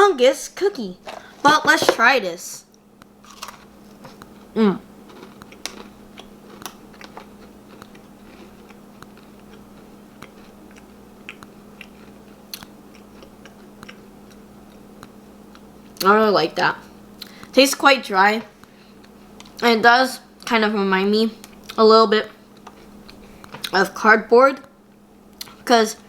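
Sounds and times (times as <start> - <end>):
faint steady hum: 0.0 - 26.0
cookie crunching: 3.2 - 15.7
person murmuring: 4.6 - 4.8.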